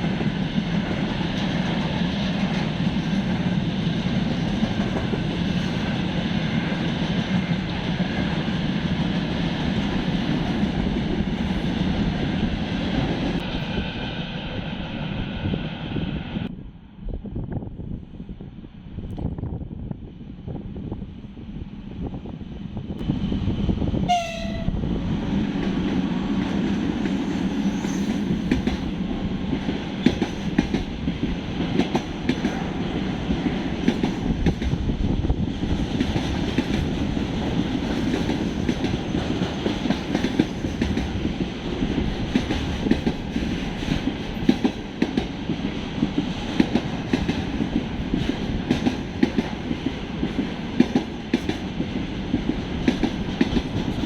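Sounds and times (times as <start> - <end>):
train rumbling past: 0.0 - 54.0
train horn blast: 24.1 - 24.8.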